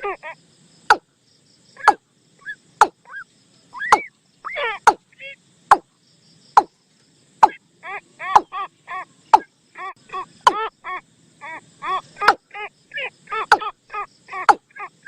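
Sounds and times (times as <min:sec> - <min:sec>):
recorded bird call notes: 0:00.0 - 0:15.0.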